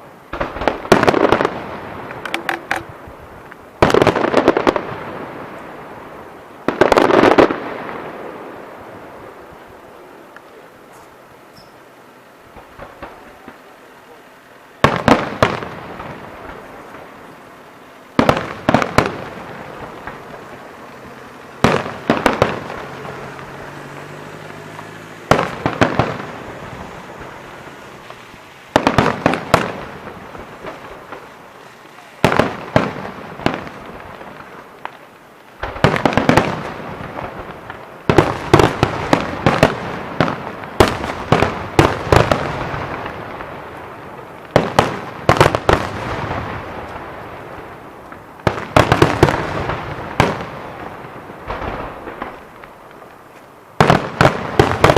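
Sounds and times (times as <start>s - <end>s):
fireworks bangs: 0.0s - 54.9s.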